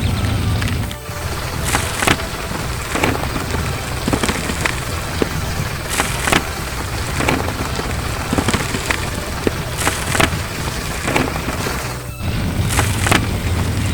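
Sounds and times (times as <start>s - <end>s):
construction vehicle engine rumbling: 0.0s - 13.9s.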